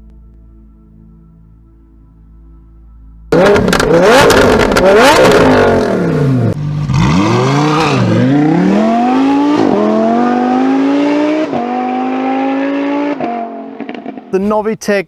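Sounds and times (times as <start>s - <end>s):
exhaust crackles and pops: 3.3s - 6.6s
sports car engine revving: 3.3s - 14.3s.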